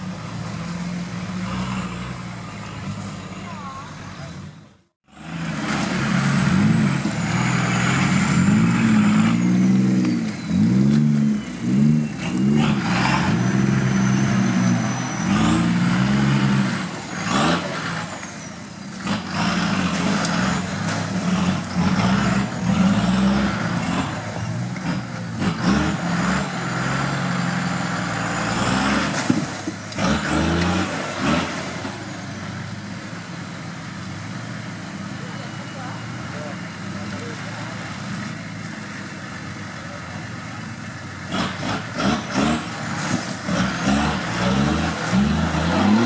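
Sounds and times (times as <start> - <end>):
vehicle engine revving: 0.0 - 46.0.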